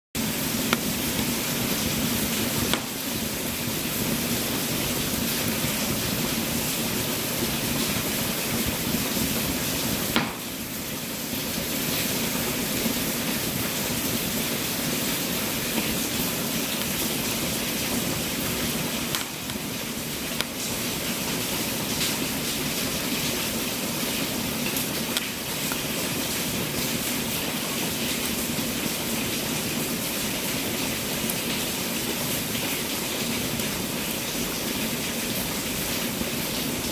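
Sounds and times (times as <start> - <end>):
wood fire hissing and crackling: 0.2 - 36.9
sharp pop of fire: 2.6 - 3.1, 10.0 - 10.7.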